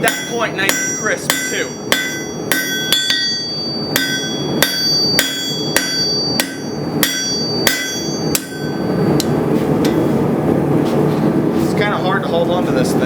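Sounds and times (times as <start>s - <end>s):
hammer ringing on anvil: 0.0s - 10.0s.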